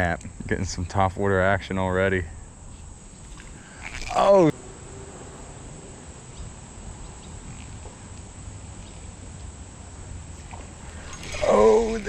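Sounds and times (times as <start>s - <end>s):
even hiss: 0.0s - 5.9s, 10.4s - 12.0s
insect drone: 0.0s - 12.0s.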